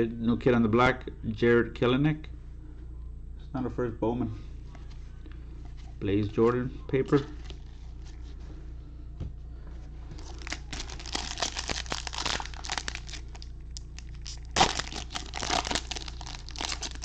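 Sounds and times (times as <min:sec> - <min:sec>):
plastic wrapper tearing and crinkling: 0:10.2 - 0:17.0.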